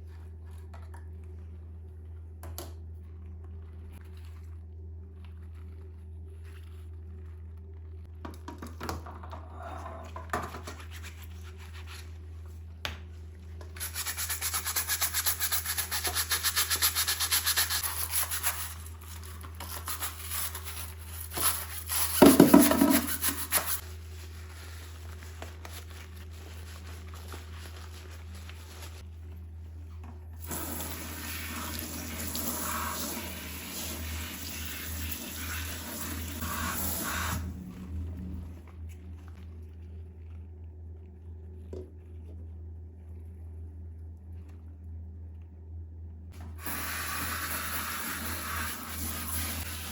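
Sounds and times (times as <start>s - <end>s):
brush scrubbing a surface: 13.7s - 29.1s, 46.7s - 49.9s.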